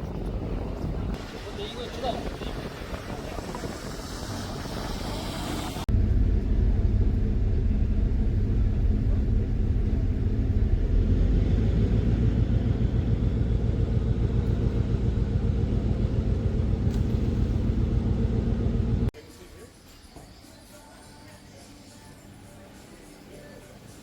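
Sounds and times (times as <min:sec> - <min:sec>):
vehicle engine rumbling: 0:00.0 - 0:19.1.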